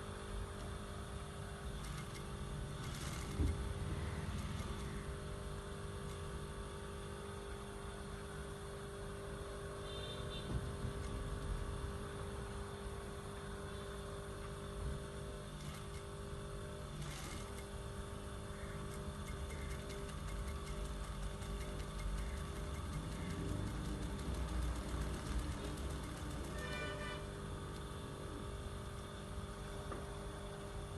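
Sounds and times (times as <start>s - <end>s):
machine hum: 0.0s - 30.9s
sewing machine running: 1.7s - 6.4s, 15.5s - 18.0s, 18.8s - 27.4s.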